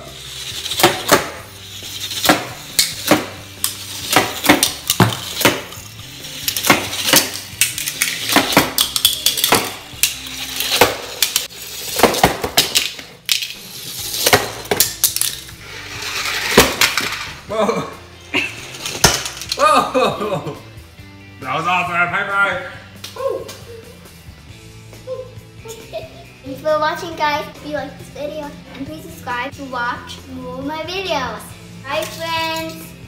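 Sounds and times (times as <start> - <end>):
toy cars clattering down track: 0.2 - 17.4, 18.6 - 19.6.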